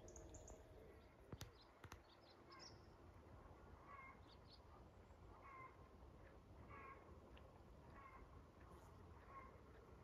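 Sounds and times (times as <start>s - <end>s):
faint bird chirps: 0.0s - 3.0s.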